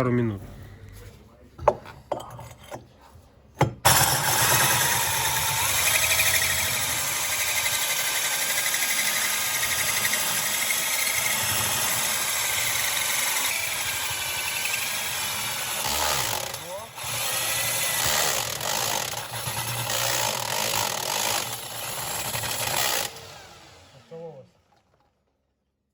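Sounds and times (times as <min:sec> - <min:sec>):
electric power tool motor whine: 0:03.9 - 0:19.2.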